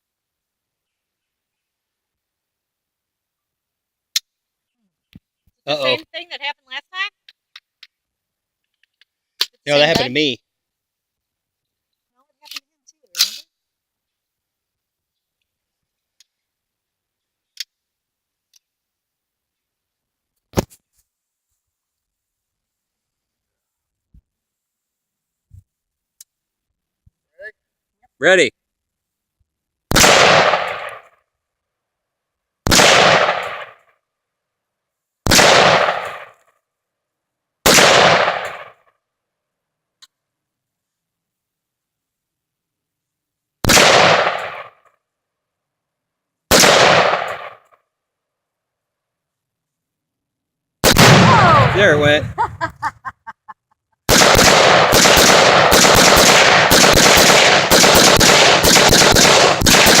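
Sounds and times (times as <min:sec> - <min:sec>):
rapid gunfire: 0:29.9 - 0:31.0, 0:32.7 - 0:33.8, 0:35.3 - 0:36.3, 0:37.7 - 0:38.8, 0:46.5 - 0:47.6, 0:50.8 - 0:51.8, 0:54.1 - 1:00.0
rifle shots echoing: 0:29.9 - 0:31.1, 0:32.7 - 0:33.8, 0:35.3 - 0:36.4, 0:37.6 - 0:38.8, 0:43.6 - 0:44.8, 0:46.5 - 0:47.7, 0:50.8 - 0:52.3, 0:54.1 - 1:00.0.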